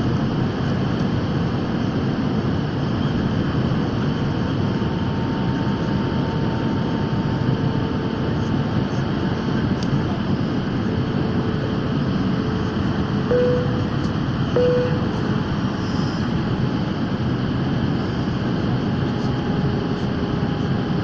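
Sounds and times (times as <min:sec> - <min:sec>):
airplane cabin engine rush: 0:00.0 - 0:21.0
faint steady hum: 0:13.3 - 0:16.2.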